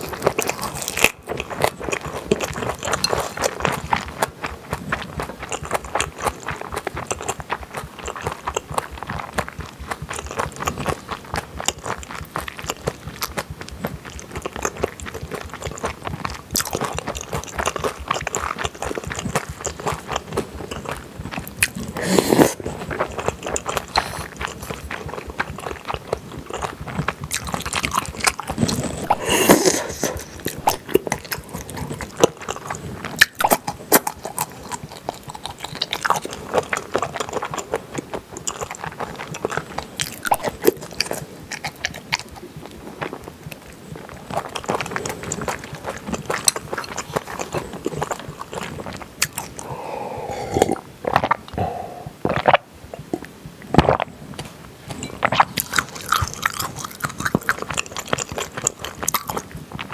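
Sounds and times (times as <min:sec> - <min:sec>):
wet chewing and smacking: 0:00.0 - 0:59.9
loud mouth sounds: 0:21.5 - 0:25.6, 0:26.5 - 0:32.1, 0:49.2 - 0:54.1.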